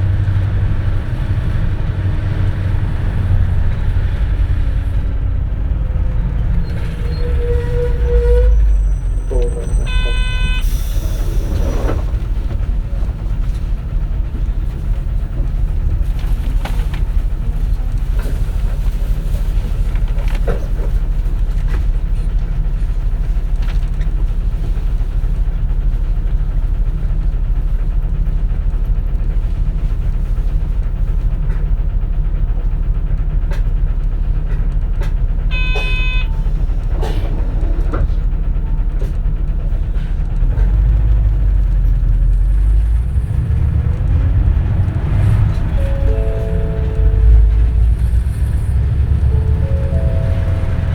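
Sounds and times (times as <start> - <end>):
bus engine and road rumble: 0.0 - 50.9
short electronic chime: 45.6 - 50.9.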